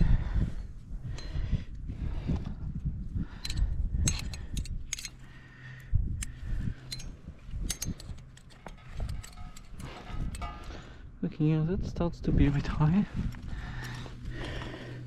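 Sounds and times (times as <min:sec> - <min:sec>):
low handling rumble: 0:00.0 - 0:15.0
metal climbing gear clinking: 0:03.2 - 0:11.1, 0:13.3 - 0:15.0.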